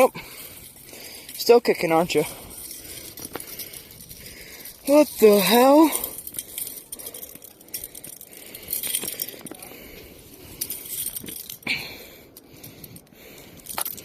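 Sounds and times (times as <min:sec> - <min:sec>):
metal stringer jangling: 0:00.0 - 0:14.0
small clicks and rustling: 0:02.2 - 0:09.7, 0:10.5 - 0:14.0.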